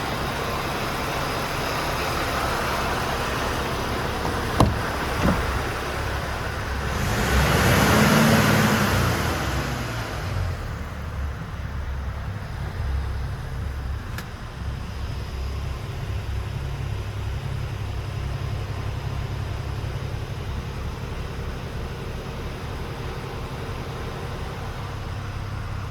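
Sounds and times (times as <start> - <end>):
diesel engine idling: 0.0 - 25.9.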